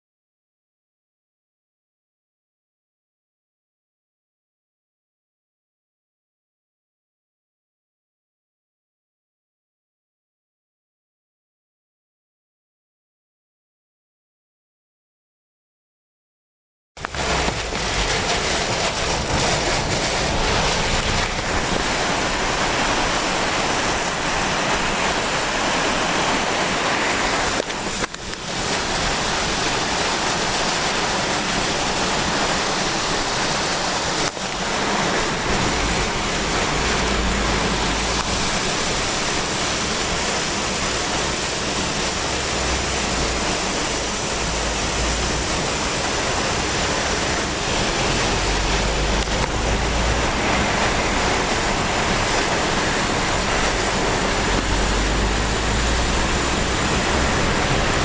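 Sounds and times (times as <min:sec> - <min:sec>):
torrential rain and wind: 0:17.0 - 0:58.0.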